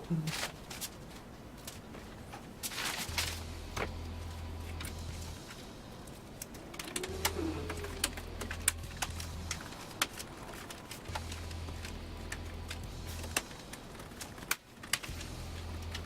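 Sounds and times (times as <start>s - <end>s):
low hum: 1.4s - 16.0s
computer parts clicking and tapping: 6.3s - 16.0s.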